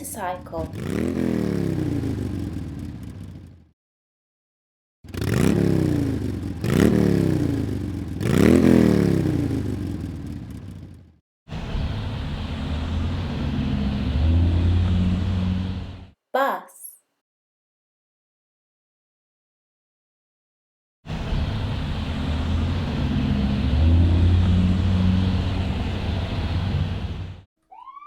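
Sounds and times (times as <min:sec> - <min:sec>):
motorcycle engine revving: 0:00.0 - 0:03.7, 0:05.1 - 0:16.2, 0:21.1 - 0:27.5.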